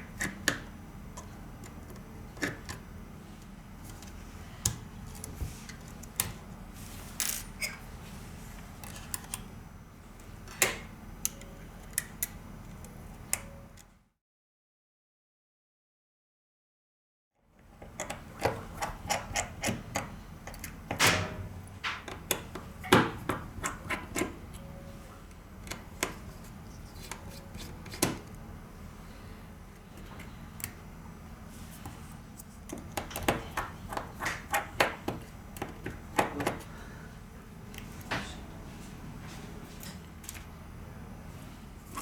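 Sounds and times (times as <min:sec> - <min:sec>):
steady low hum: 0:17.7 - 0:42.0.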